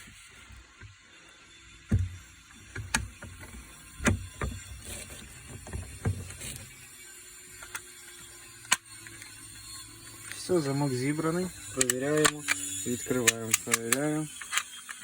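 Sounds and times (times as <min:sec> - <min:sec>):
lock parts clicking and knocking: 0:11.7 - 0:15.0.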